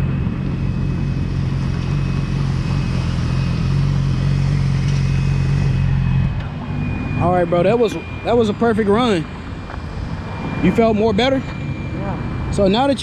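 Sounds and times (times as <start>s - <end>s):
motorcycle engine at low revs: 0.0s - 7.9s.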